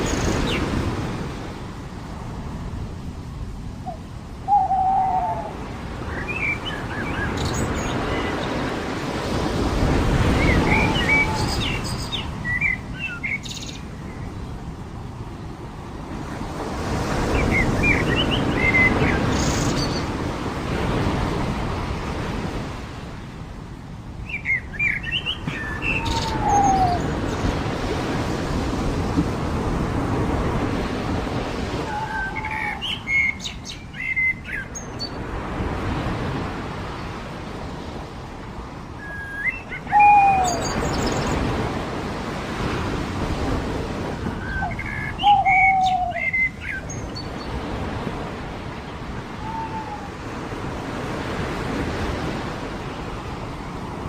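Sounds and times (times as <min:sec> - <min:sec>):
low falling bird call: 0:03.9 - 0:05.6, 0:10.3 - 0:12.8, 0:24.8 - 0:27.6, 0:49.3 - 0:50.2
birds chirping: 0:10.2 - 0:14.5, 0:24.2 - 0:27.7, 0:31.9 - 0:35.2, 0:39.0 - 0:41.7, 0:44.3 - 0:47.7
surf washing onto beach: 0:25.4 - 0:32.9, 0:47.5 - 0:54.0.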